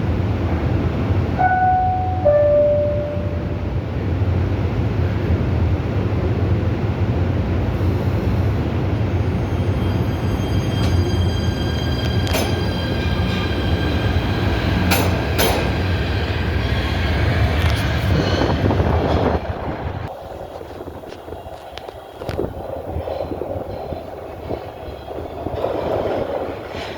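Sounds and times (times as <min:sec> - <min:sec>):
subway train rumbling on rails: 0:00.0 - 0:26.9
high whine: 0:01.4 - 0:04.1
sharp metallic clanks: 0:14.8 - 0:15.9.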